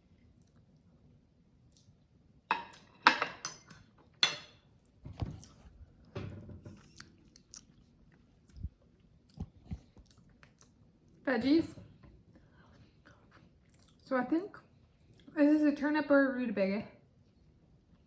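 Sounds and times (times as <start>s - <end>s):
person eating: 6.7s - 10.9s, 12.6s - 14.0s.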